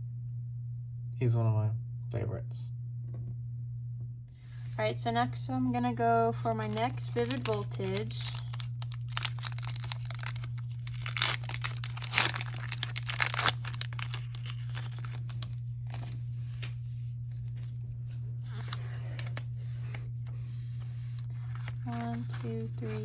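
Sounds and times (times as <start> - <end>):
low hum: 0.0 - 23.0
foil pack tearing and crinkling: 6.4 - 17.8, 18.4 - 19.4, 21.1 - 23.0
wrapper and cards rustling: 6.4 - 17.8, 18.4 - 20.0, 20.8 - 23.0.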